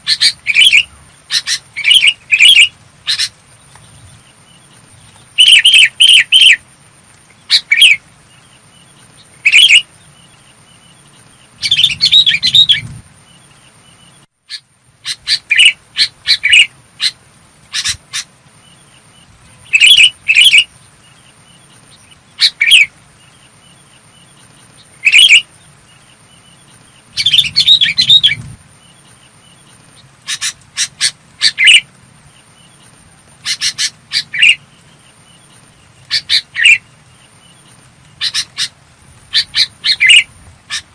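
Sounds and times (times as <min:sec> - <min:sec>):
bird singing bubbling phrases: 0:00.0 - 0:04.7, 0:05.4 - 0:06.6, 0:07.4 - 0:17.2, 0:17.8 - 0:32.8.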